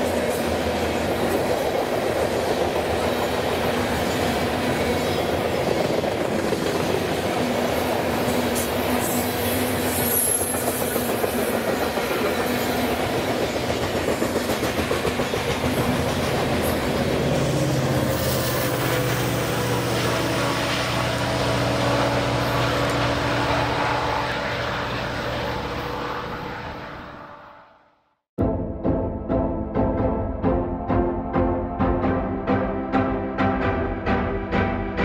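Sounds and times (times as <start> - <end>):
train wheels clicking over rail joints: 0.0 - 21.5
diesel locomotive engine hum: 0.0 - 27.7.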